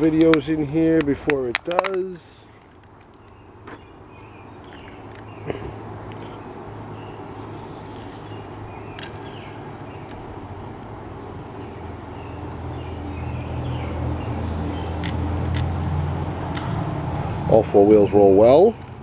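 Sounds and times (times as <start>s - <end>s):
clicks of small objects handled: 0.0s - 5.3s, 7.5s - 10.9s, 14.4s - 15.7s, 16.5s - 17.4s
vehicle engine rumble: 0.0s - 19.0s.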